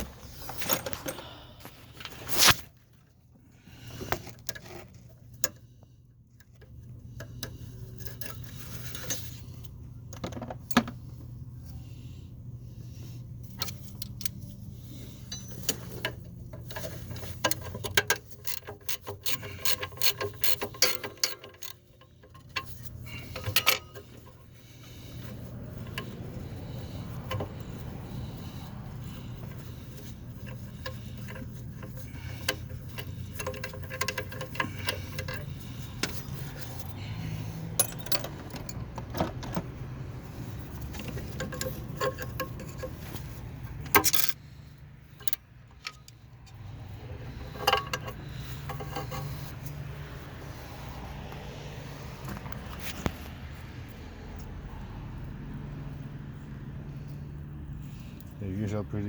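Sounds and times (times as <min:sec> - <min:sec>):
ratchet wrench clicking: 0:15.2 - 0:24.4, 0:25.1 - 0:38.4, 0:40.6 - 0:44.5.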